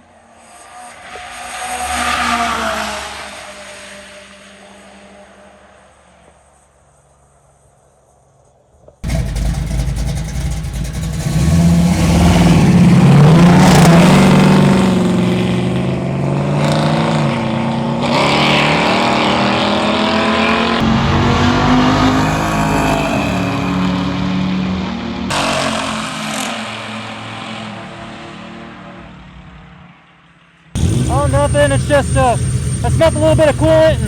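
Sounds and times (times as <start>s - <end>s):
car engines accelerating hard: 9.0s - 29.2s, 30.8s - 34.0s.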